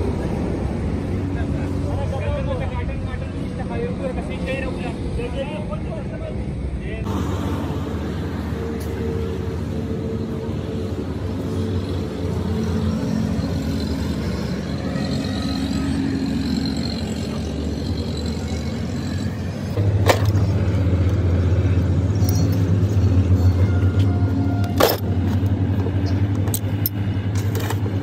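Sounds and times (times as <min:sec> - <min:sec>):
engine humming: 0:07.0 - 0:28.0.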